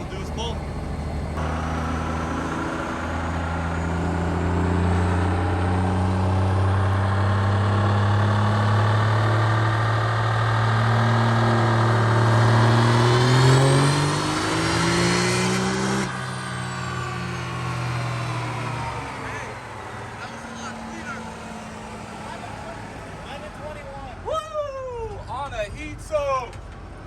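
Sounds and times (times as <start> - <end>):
turbo whine: 0.0 - 5.6
diesel engine accelerating: 0.0 - 24.3.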